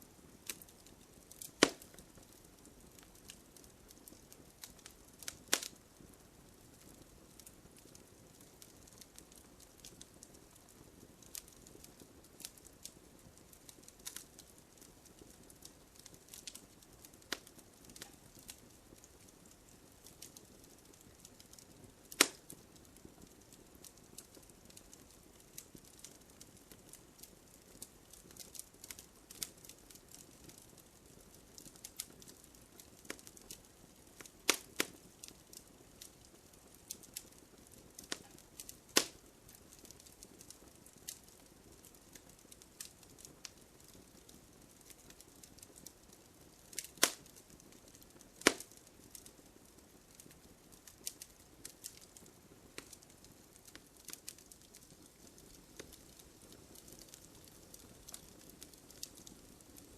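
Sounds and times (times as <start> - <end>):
bonfire crackling: 0.0 - 59.9.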